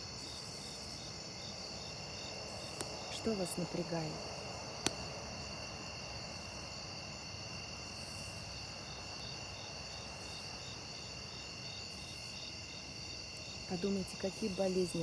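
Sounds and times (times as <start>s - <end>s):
insects chirping: 0.0s - 15.0s
sharp crack of wood popping: 2.4s - 5.6s.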